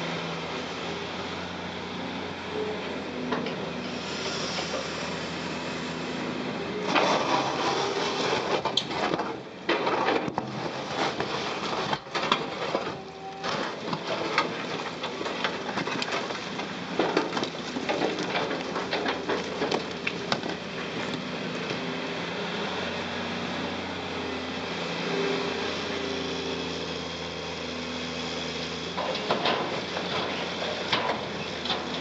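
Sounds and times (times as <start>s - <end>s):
excavator engine under load: 0.0s - 32.0s
broken concrete clattering: 6.9s - 21.2s.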